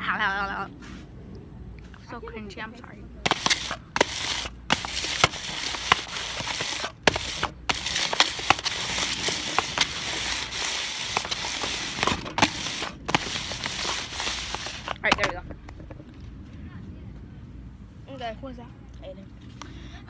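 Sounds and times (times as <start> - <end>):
plastic packaging crinkling: 3.3 - 15.4.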